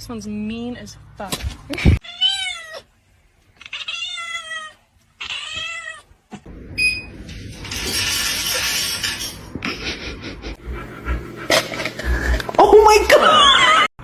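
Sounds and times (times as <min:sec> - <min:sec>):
cat meowing: 0:02.0 - 0:02.9, 0:03.6 - 0:06.1.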